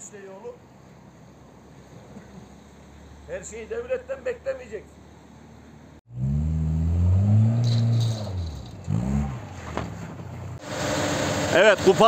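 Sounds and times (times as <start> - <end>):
car engine revving: 6.0 - 12.0.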